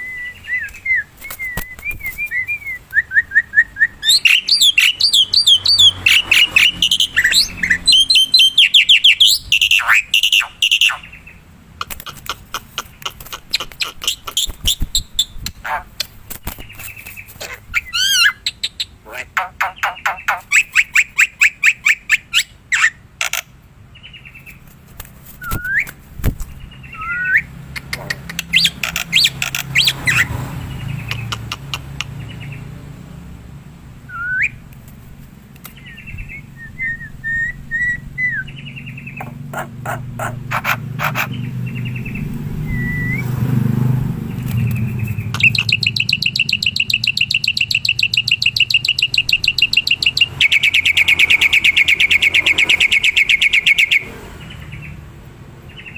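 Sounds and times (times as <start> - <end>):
bird clicking and whistling: 0.6 - 11.1, 11.8 - 23.5, 24.5 - 26.0, 27.0 - 30.3, 31.0 - 32.2, 44.4 - 54.0
bird rapidly repeated notes: 4.0 - 11.1, 11.8 - 15.4, 16.0 - 21.8, 27.7 - 30.3, 30.9 - 32.4, 39.2 - 41.4, 44.4 - 54.0.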